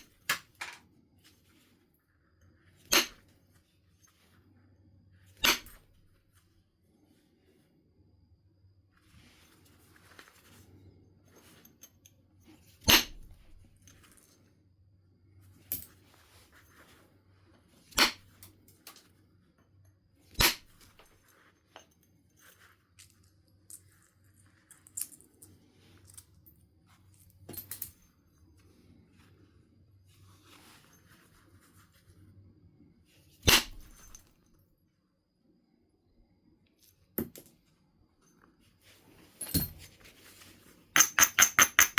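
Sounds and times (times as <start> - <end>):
billet striking flint: 2.8 - 3.3, 5.4 - 5.9, 41.0 - 41.9.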